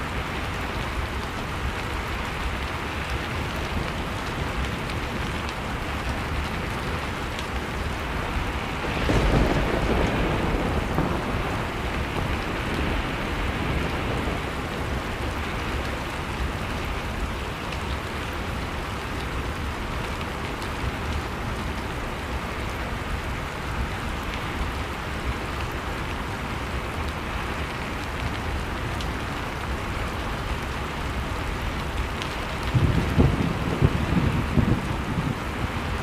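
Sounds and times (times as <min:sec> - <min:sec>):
storm wind rushing: 0:32.7 - 0:36.0.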